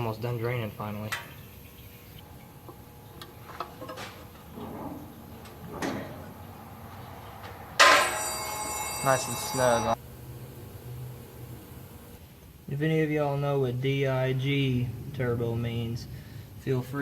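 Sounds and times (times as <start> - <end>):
loud sustained ringing tones: 7.8 - 10.0.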